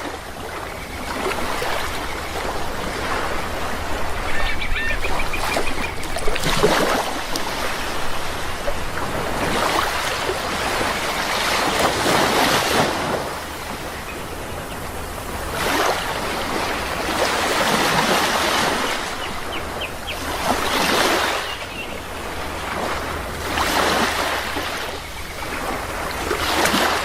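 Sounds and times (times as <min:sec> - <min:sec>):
sea waves washing in: 0:00.0 - 0:27.0
bird calling: 0:03.6 - 0:06.5.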